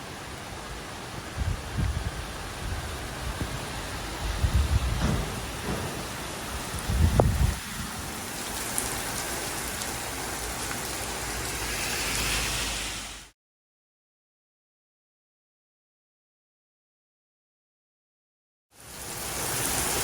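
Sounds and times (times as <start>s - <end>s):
heavy rain: 0.0s - 13.3s, 18.8s - 20.0s.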